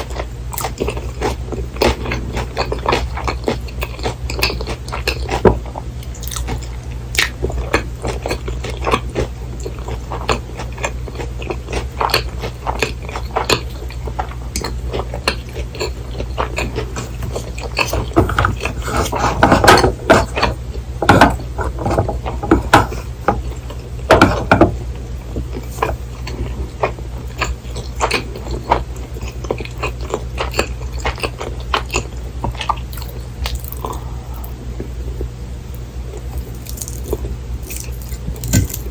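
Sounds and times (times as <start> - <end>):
crunchy chewing: 0.0 - 38.9
low hum: 12.6 - 38.9.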